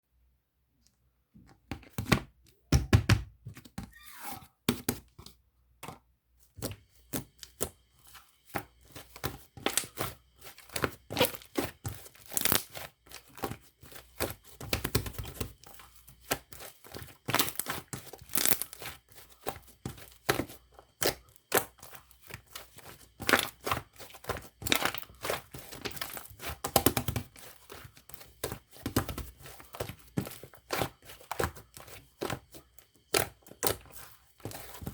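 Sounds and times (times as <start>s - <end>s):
slime tearing and crackling: 12.2s - 12.7s, 17.3s - 18.8s.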